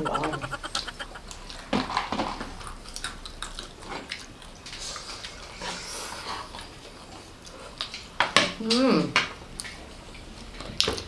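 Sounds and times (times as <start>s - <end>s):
mouth smacks: 0.0s - 1.7s
people chewing food: 0.0s - 11.0s.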